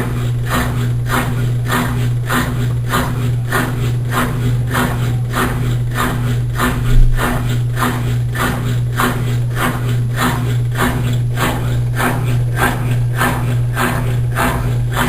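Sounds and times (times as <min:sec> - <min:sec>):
washing machine agitating: 0:00.0 - 0:15.0
thump: 0:06.9 - 0:07.3.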